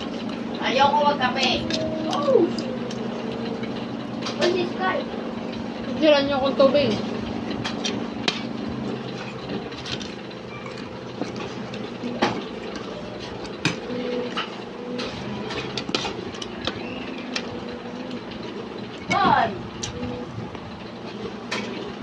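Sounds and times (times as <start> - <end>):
low mechanical hum: 0.0 - 22.0
utensils and dishes clinking: 6.9 - 18.4.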